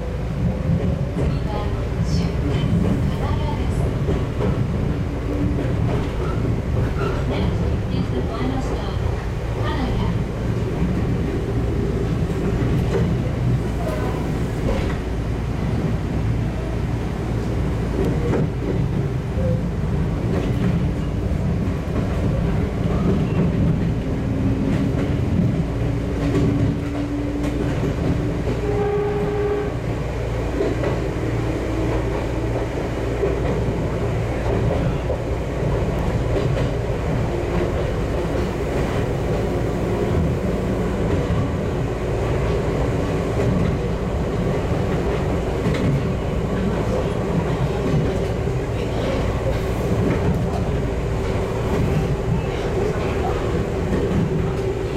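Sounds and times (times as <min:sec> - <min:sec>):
train wheels rumbling on rails: 0:00.0 - 0:54.9
rail-joint clicks: 0:00.4 - 0:09.0, 0:17.9 - 0:19.6, 0:20.2 - 0:29.0, 0:31.8 - 0:41.6, 0:43.3 - 0:54.9.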